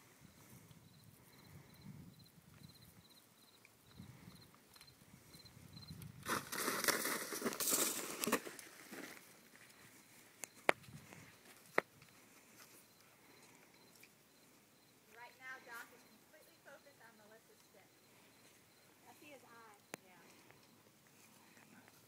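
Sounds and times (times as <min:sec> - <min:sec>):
plastic crinkling and rustling: 0:06.2 - 0:09.9.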